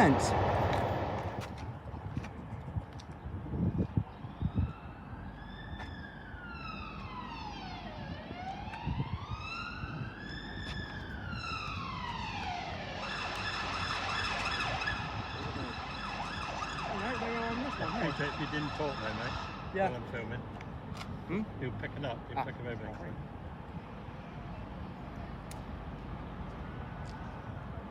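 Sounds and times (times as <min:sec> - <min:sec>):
emergency siren wailing: 0:00.0 - 0:01.5, 0:04.3 - 0:19.8
steady held siren tones: 0:00.0 - 0:01.5, 0:04.2 - 0:19.8.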